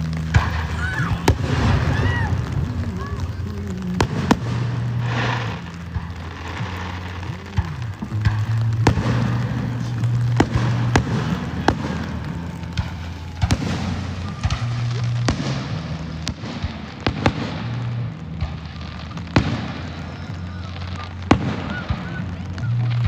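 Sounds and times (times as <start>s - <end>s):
fireworks banging and crackling: 0.0s - 23.0s.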